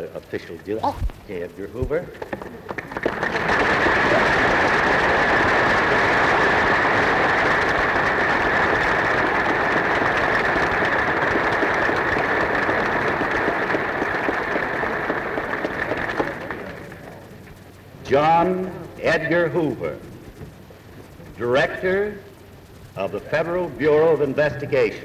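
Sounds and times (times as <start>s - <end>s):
audience applauding: 9.2s - 16.9s.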